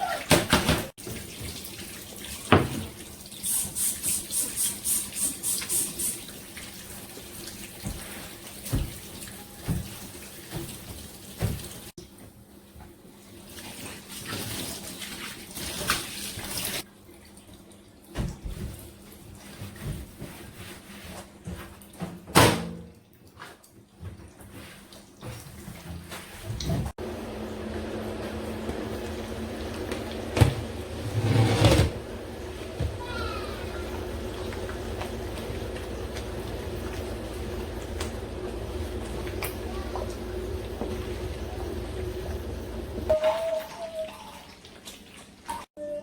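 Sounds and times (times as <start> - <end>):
tap running into a sink: 2.4 - 6.3, 7.7 - 11.9.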